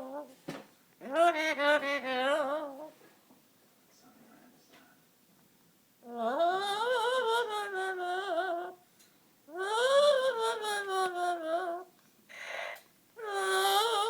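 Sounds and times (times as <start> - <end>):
parrot singing wavering notes: 1.0 - 3.0.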